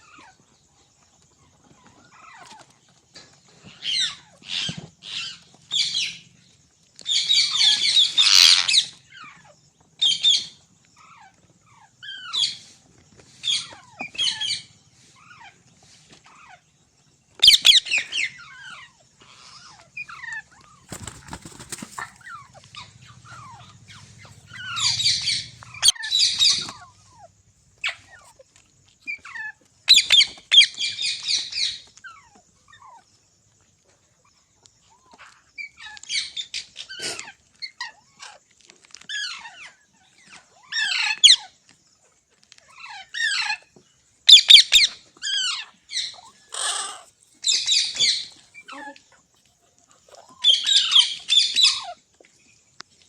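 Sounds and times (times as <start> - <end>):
parrot screeching: 8.0 - 8.7, 17.4 - 17.8, 23.3 - 26.8, 44.3 - 48.3
parrot chirps and whistles: 17.4 - 18.2, 22.2 - 28.2, 44.3 - 48.3.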